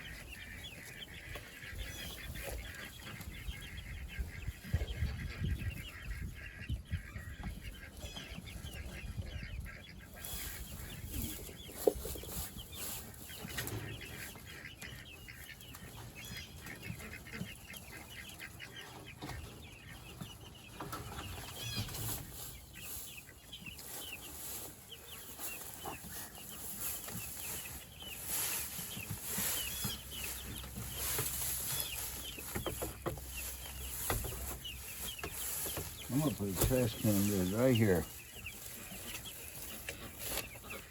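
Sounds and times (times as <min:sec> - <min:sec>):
chickens clucking and peeping: 0:00.0 - 0:40.9.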